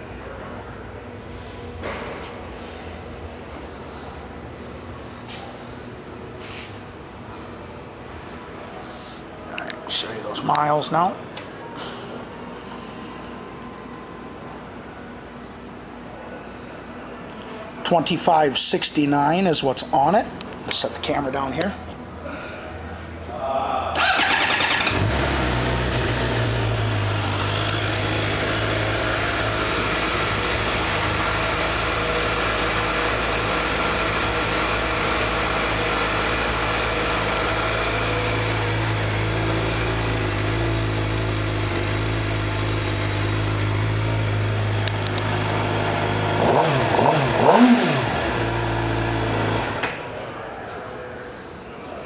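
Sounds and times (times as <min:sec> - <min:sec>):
motorcycle engine idling and revving: 0:24.0 - 0:49.9.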